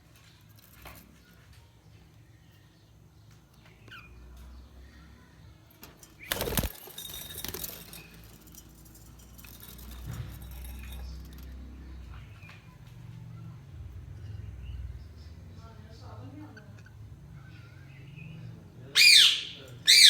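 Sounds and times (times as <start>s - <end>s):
wing flapping: 6.2s - 8.6s
budgerigars chirping: 19.0s - 20.0s.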